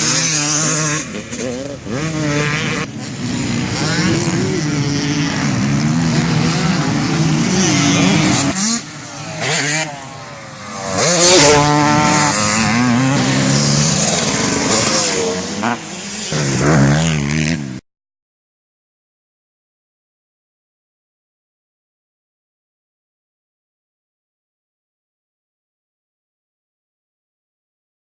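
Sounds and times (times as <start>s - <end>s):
motocross bike engine revving: 0.0s - 17.8s.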